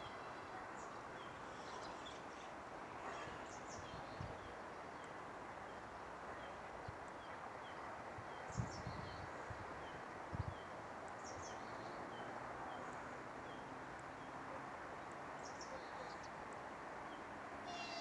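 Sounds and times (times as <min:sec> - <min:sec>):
birds chirping: 0:17.7 - 0:18.0.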